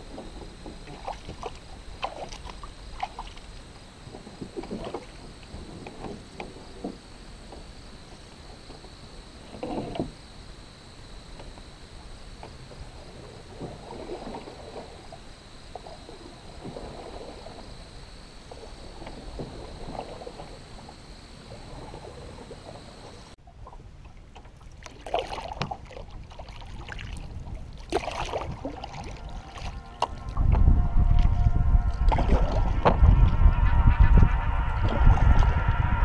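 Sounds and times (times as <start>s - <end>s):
water lapping on stony shore: 0.0s - 5.6s, 12.8s - 33.3s
water splashing against canoe hull: 0.0s - 7.7s, 11.3s - 17.8s, 18.5s - 33.3s
paddle splashing: 0.0s - 7.8s, 11.3s - 33.3s.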